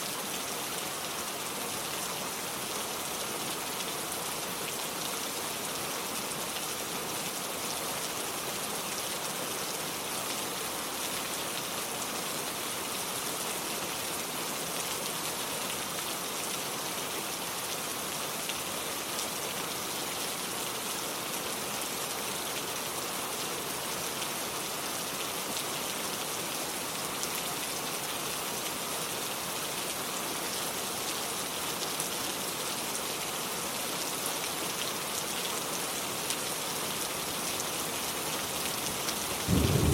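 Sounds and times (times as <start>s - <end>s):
rain pattering on water and wood: 34.4s - 39.9s.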